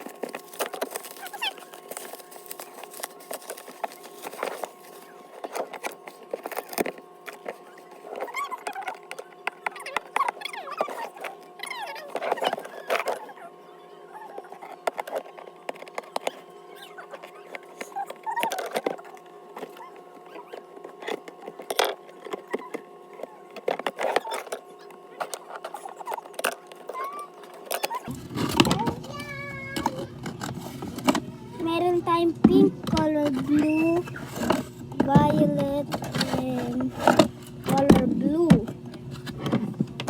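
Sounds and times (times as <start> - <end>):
packaging clicks and crinkles: 0.0 - 13.4
plastic rustling: 0.0 - 13.4
faint steady hum: 0.0 - 40.0.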